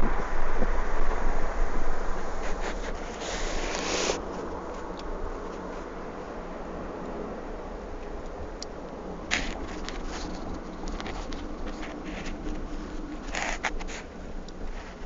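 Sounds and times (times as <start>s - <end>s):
road and engine noise inside car: 0.0s - 15.0s
clicks and rustles: 9.3s - 15.0s.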